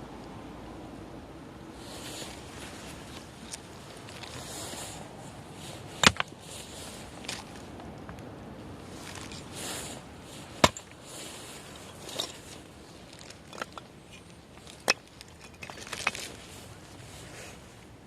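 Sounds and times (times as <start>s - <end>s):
axe chopping firewood: 5.8s - 6.4s, 10.5s - 11.0s
knocks of wood handling: 6.0s - 6.3s, 10.6s - 11.0s.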